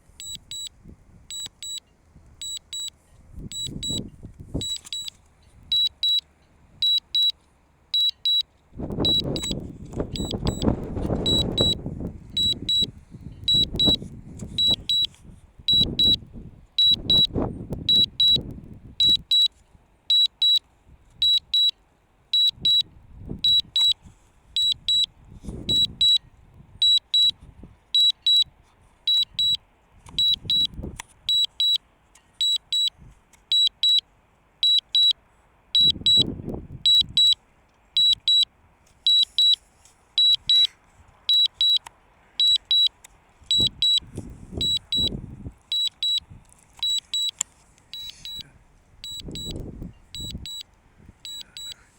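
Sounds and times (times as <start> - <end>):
high pitched double beep: 0.2 - 0.7, 3.5 - 5.1, 5.7 - 6.2, 6.8 - 7.3, 8.0 - 14.0, 14.6 - 15.1, 15.7 - 16.2, 16.8 - 18.4, 19.0 - 19.5, 21.2 - 21.7, 22.4 - 24.0, 24.6 - 25.1, 25.7 - 26.2, 29.1 - 29.6, 30.2 - 30.7, 35.8 - 36.3, 36.9 - 37.4, 38.0 - 38.4, 39.1 - 39.6, 40.2 - 40.7, 41.3 - 41.8, 42.4 - 42.9, 43.5 - 44.0, 44.6 - 46.2, 46.8 - 48.4, 49.0 - 50.6, 51.2 - 51.8.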